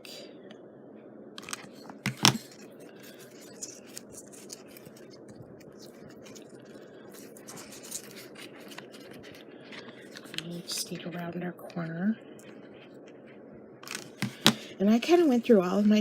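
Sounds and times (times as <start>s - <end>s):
steady low hum: 0.0s - 16.0s
hands rustling paper and ribbon: 1.4s - 11.2s, 13.8s - 16.0s.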